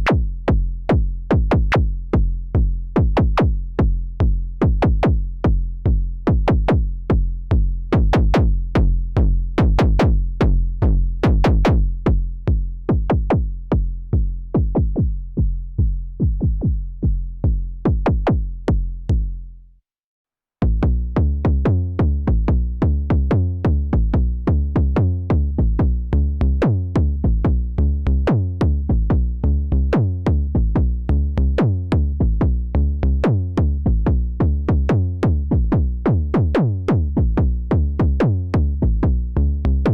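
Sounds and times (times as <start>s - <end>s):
synthesizer kick drums: 0.0s - 19.3s, 32.0s - 32.7s, 33.6s - 39.9s
low synth bass notes: 0.0s - 19.6s, 20.6s - 39.9s.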